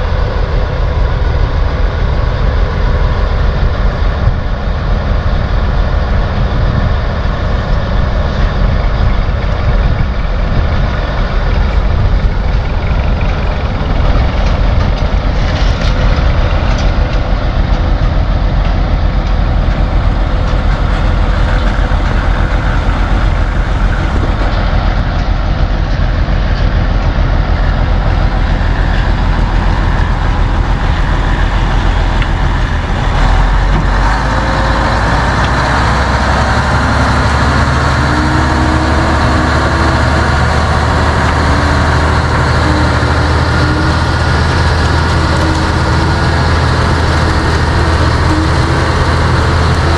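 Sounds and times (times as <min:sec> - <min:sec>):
heavy machinery engine running: 0:00.0 - 0:49.9.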